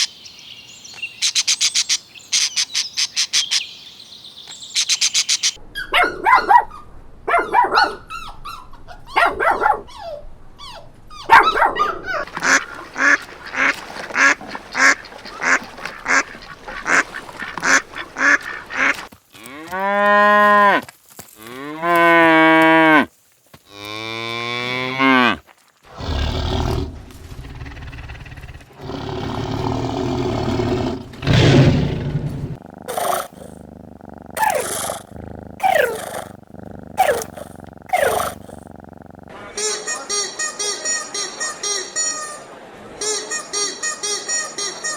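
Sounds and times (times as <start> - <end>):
farm animal calls: 10.6 - 19.8, 32.5 - 40.2.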